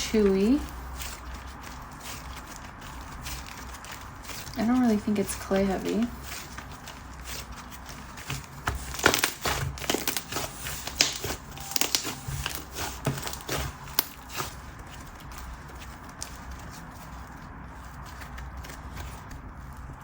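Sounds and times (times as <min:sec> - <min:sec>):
slime squishing with sticky clicks: 0:06.3 - 0:16.4.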